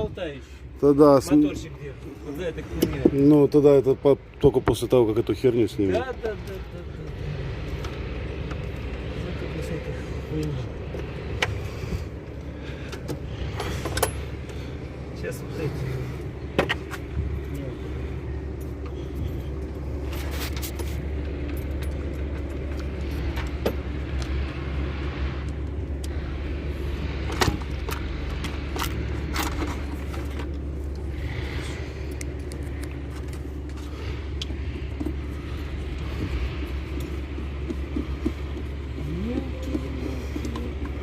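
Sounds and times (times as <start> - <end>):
steady low rumble: 0.0 - 41.0
hand tools and bolts clinking: 12.9 - 14.6.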